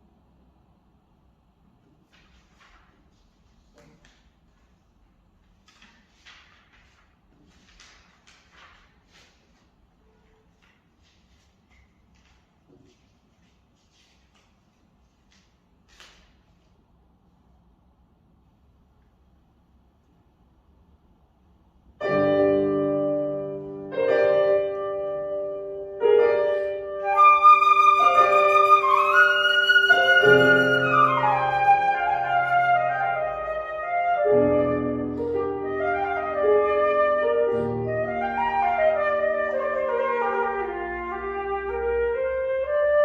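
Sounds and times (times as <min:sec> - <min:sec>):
piano chords: 0:22.0 - 0:43.0
flute melody: 0:26.6 - 0:43.0.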